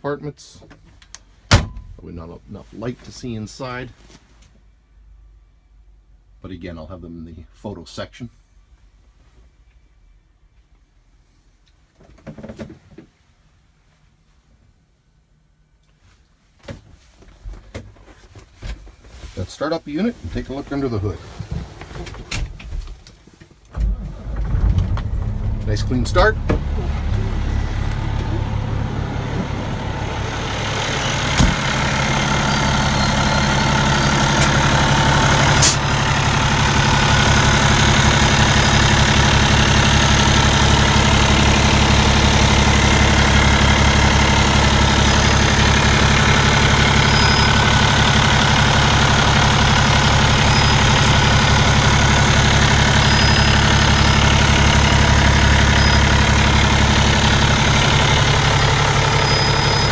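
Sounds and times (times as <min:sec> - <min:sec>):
diesel truck engine idling: 0:23.7 - 0:59.9.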